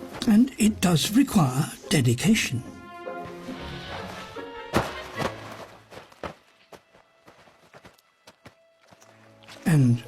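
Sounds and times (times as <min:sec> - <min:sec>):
crunches in snow: 0:03.2 - 0:09.2.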